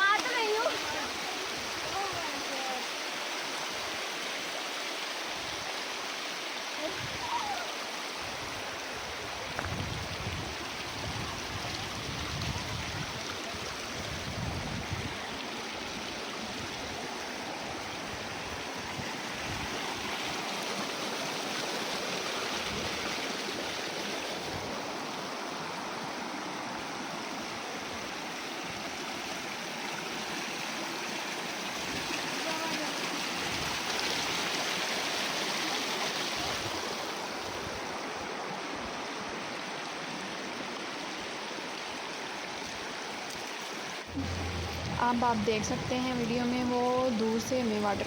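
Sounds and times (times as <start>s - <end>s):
stream flowing over rocks: 0.0s - 48.0s
low bumps: 44.1s - 48.0s.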